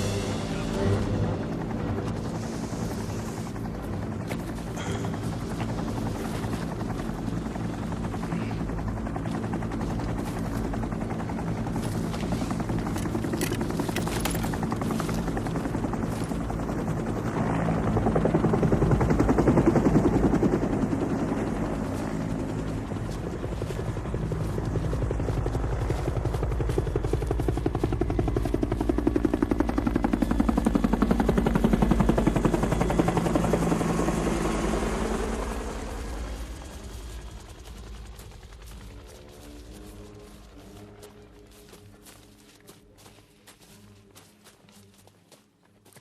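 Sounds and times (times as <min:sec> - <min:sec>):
helicopter hovering: 0:00.0 - 0:45.0.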